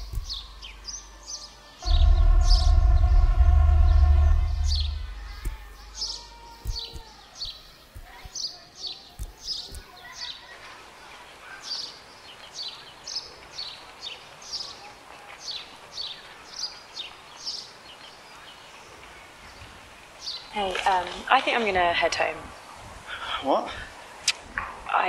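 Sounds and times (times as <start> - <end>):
dull low thumps: 0.0 - 1.0, 1.8 - 7.1
bird chirping: 0.0 - 10.2
steady outdoor hiss: 0.0 - 25.0.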